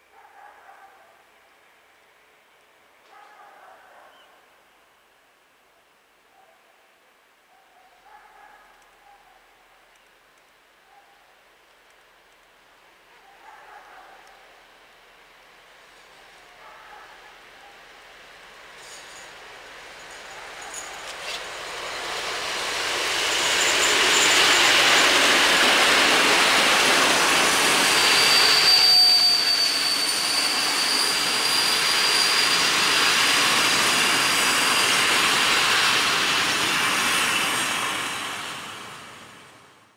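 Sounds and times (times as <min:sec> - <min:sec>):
diesel locomotive passing: 0:14.2 - 0:39.9
train wheels rolling on rail: 0:17.9 - 0:39.8
high wheel squeal: 0:23.2 - 0:25.4, 0:26.8 - 0:35.8.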